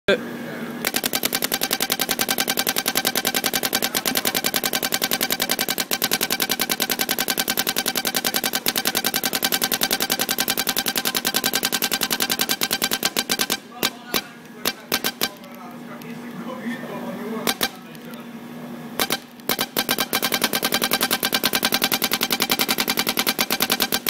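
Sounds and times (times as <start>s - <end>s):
paintball marker rapid firing: 0.8s - 15.6s, 17.4s - 18.1s, 19.0s - 24.0s.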